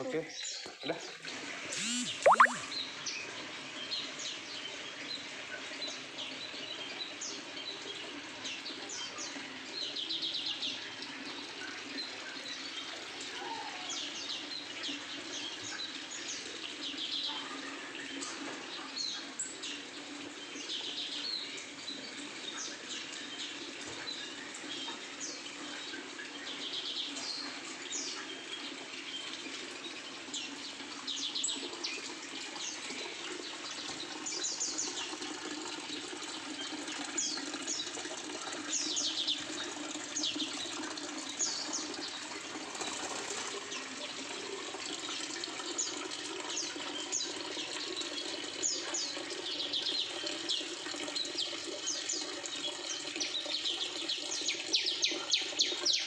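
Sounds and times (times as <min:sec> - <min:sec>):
small birds chirping: 0:00.0 - 0:03.2.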